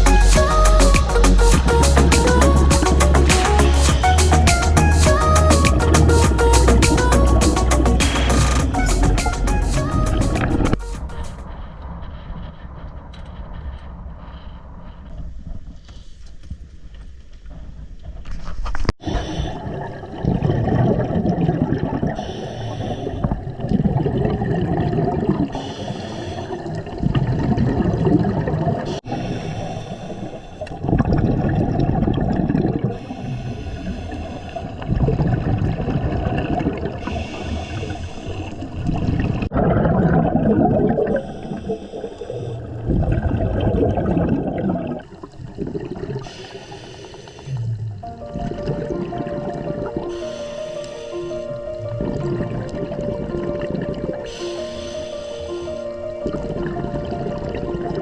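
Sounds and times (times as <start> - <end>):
exhaled bubbles rushing: 19.0 - 22.2, 23.2 - 25.6, 26.5 - 29.0, 30.7 - 33.2, 33.8 - 46.4, 47.4 - 50.2, 51.4 - 54.4, 55.7 - 58.0
regulator inhale hiss: 22.2 - 23.4, 25.6 - 26.7, 37.0 - 38.6, 46.2 - 47.6, 50.0 - 51.8, 54.3 - 56.0.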